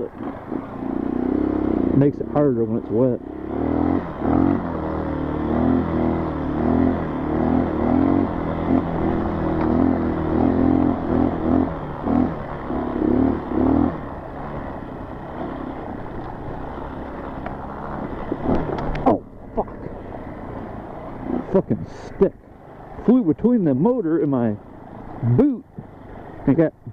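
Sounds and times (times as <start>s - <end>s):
dirt bike engine revving: 0.0s - 26.8s.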